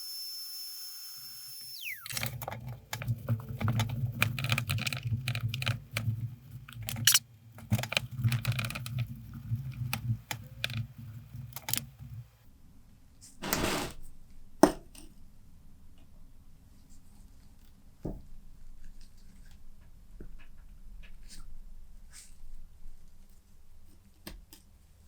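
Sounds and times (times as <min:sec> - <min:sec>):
small hard objects clicking: 0:06.8 - 0:07.2.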